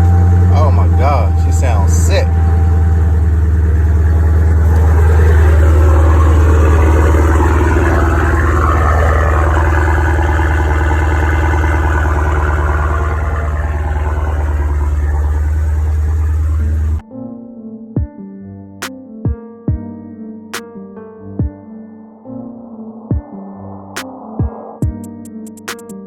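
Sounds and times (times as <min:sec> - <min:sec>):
car engine idling loudly: 0:00.0 - 0:17.0.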